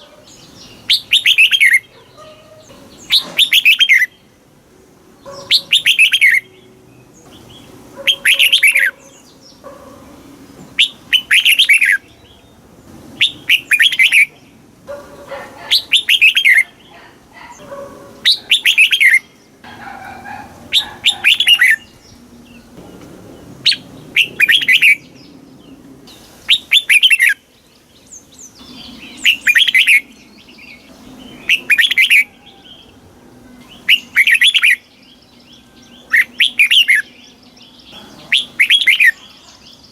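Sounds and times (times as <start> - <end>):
bird singing whistled phrases: 0.9 - 1.9, 3.1 - 4.2, 5.3 - 6.6, 10.8 - 12.0, 13.2 - 14.3, 15.7 - 16.7, 18.3 - 19.4, 26.5 - 27.4, 28.6 - 30.1, 33.7 - 37.2, 38.3 - 39.8.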